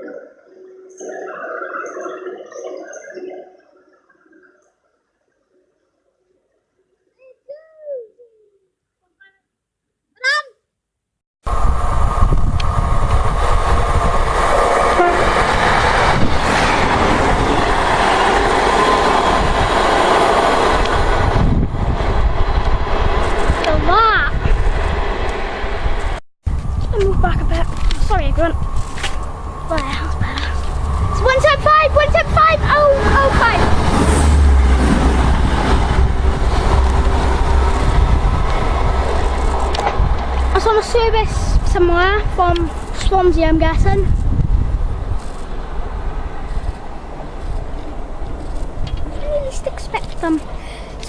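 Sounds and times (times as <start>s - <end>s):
train passing: 11.5s - 51.0s.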